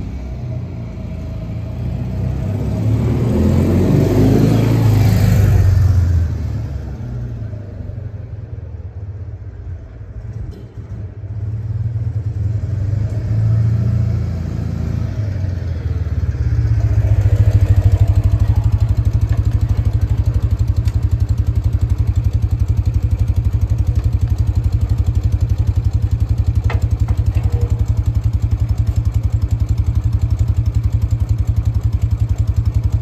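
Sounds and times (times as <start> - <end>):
motorcycle engine idling: 14.2 - 33.0.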